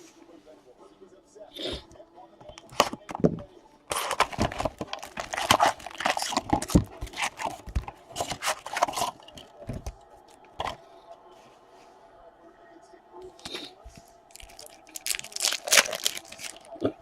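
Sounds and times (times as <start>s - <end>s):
packaging being torn open: 3.9s - 7.6s, 14.3s - 16.8s
plastic wrapping crinkling: 3.9s - 9.9s, 14.3s - 17.0s.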